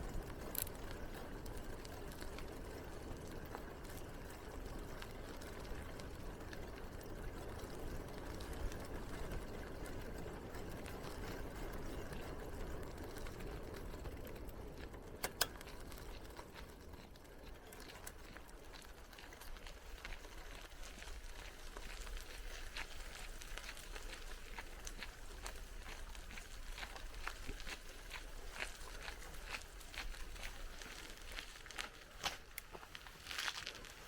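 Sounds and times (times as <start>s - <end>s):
bicycle tyres rolling on path: 0.0s - 34.0s.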